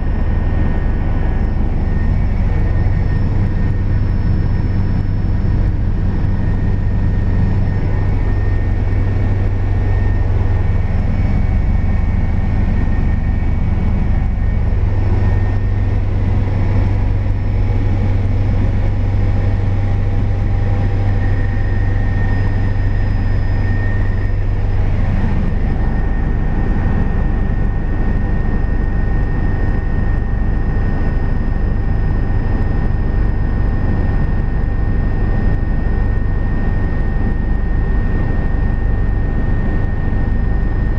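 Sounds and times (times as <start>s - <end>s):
faint whine: 0.0s - 40.9s
helicopter cabin drone: 0.0s - 40.9s.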